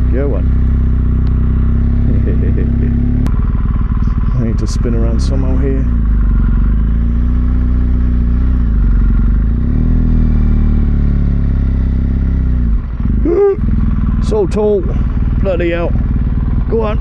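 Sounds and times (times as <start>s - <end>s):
motorcycle engine at low revs: 0.0s - 17.0s.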